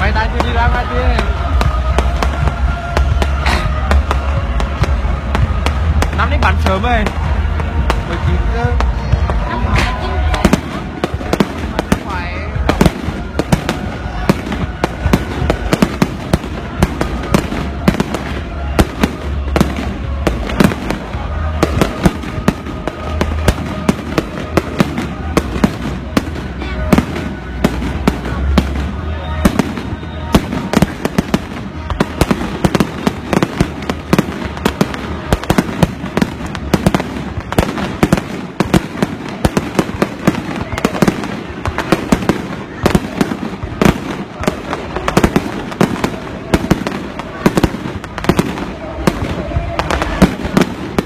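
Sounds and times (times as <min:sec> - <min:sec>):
fireworks exploding: 0:00.0 - 0:51.0
noisy background: 0:00.0 - 0:51.0.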